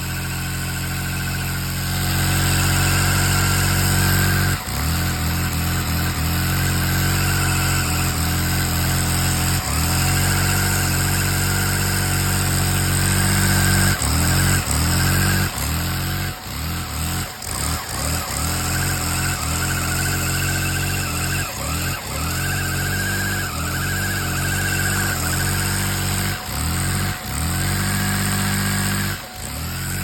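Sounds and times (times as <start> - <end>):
toy truck motor humming: 0.0 - 30.0.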